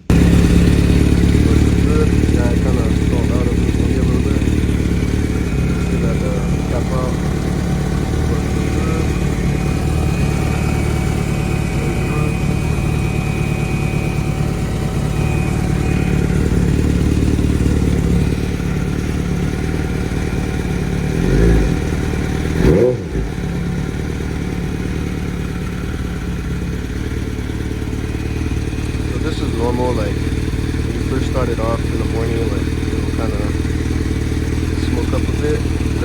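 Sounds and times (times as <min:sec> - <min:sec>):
engine throttle blips: 0:00.0 - 0:36.0
motorcycle engine idling: 0:00.0 - 0:36.0.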